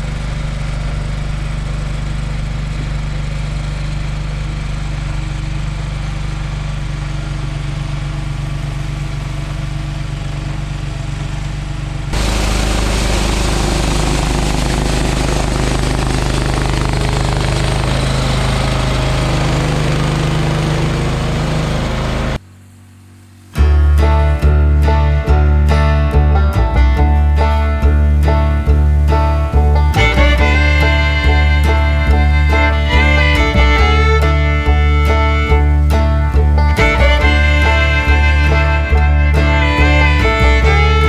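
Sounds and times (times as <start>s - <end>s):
snowblower rushing noise: 0.0s - 7.6s, 12.1s - 41.0s
lawn tractor engine running: 0.0s - 41.0s.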